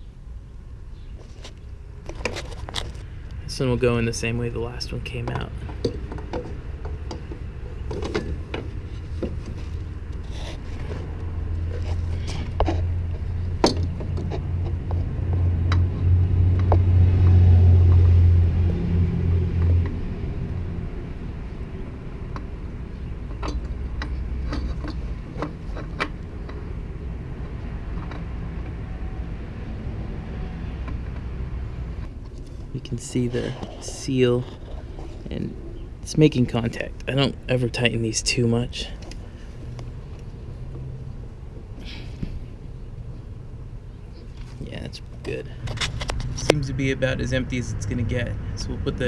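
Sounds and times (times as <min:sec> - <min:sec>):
low vehicle rumble: 0:00.0 - 0:49.0
small clicks and scrapes: 0:01.2 - 0:03.1, 0:23.3 - 0:26.7.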